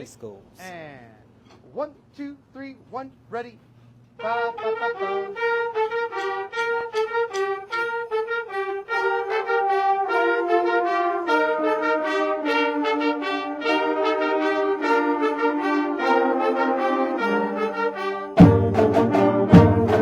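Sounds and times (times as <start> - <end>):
marching band brass playing: 4.2 - 20.0.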